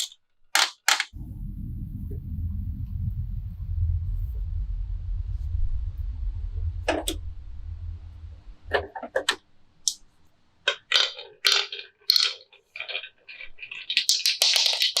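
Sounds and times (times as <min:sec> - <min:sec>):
low rolling rumble: 0:01.2 - 0:09.7
marbles clacking on wooden run: 0:10.7 - 0:15.0.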